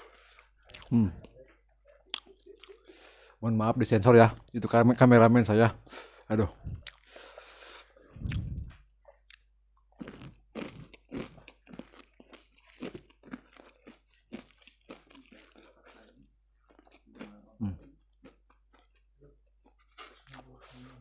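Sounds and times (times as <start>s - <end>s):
crunchy chewing of fried chicken: 6.7s - 21.0s.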